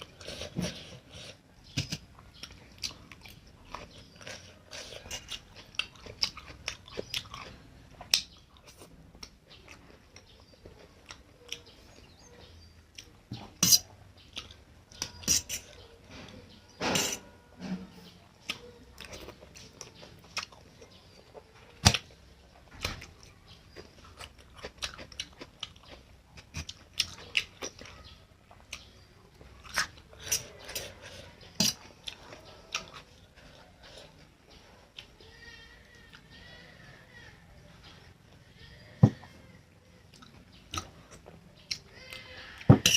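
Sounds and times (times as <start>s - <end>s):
person chewing noodles: 0.0s - 15.9s, 18.4s - 35.2s.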